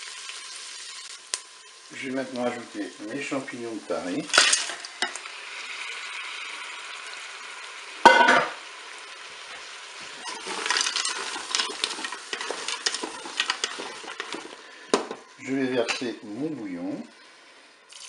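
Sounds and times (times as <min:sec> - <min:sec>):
mushrooms sizzling in a hot bowl: 0:00.0 - 0:18.0
wooden spatula scraping a bowl: 0:10.2 - 0:14.6.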